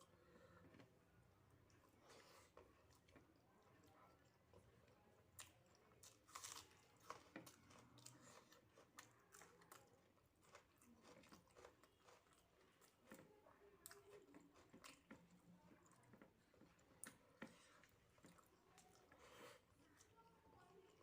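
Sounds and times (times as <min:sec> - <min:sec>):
person chewing: 0:05.3 - 0:20.1.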